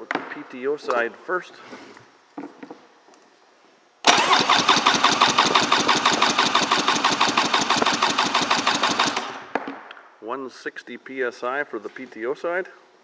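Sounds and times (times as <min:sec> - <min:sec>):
rhythmic engine chugging: 0:04.1 - 0:09.4
electric starter cranking engine: 0:04.1 - 0:09.6.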